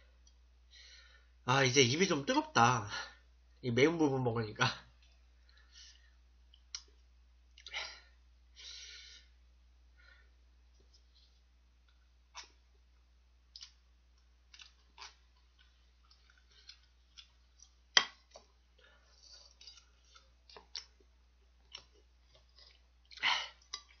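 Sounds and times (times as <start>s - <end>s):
wet mouth clicks and smacks: 13.5s - 13.8s.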